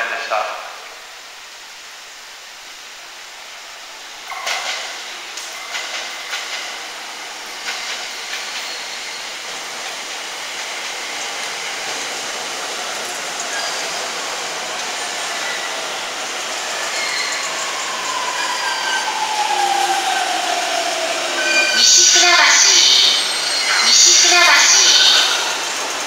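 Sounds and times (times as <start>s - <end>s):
wheels clacking over rail joints: 4.3s - 9.0s
electric train running: 4.3s - 26.0s.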